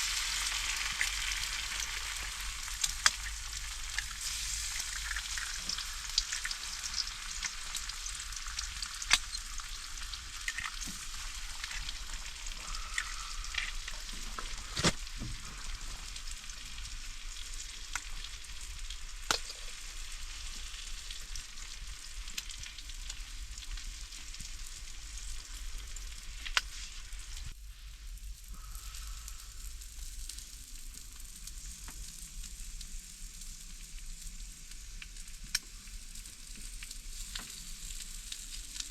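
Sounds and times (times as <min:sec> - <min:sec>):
food sizzling in a pan: 0:00.0 - 0:38.9
fat popping: 0:12.6 - 0:15.6.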